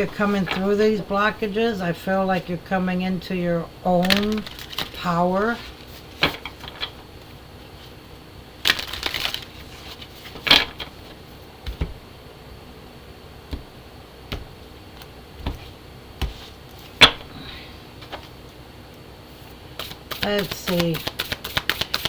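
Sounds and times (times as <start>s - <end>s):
cards shuffling: 0.0s - 0.8s, 3.9s - 7.0s, 8.6s - 11.1s, 19.8s - 22.0s.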